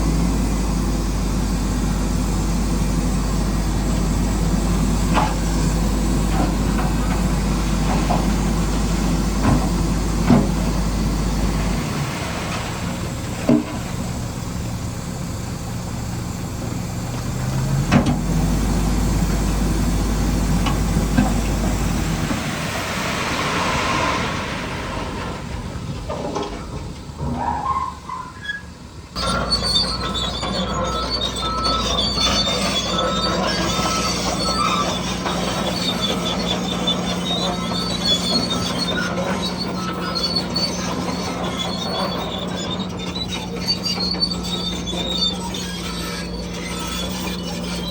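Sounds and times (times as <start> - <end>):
low motor hum: 0.0 - 27.3.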